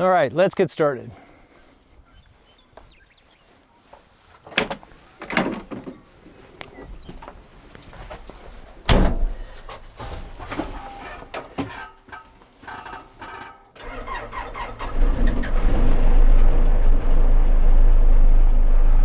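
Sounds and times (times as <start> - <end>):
knocks and clunks: 4.4 - 6.0, 8.0 - 14.0.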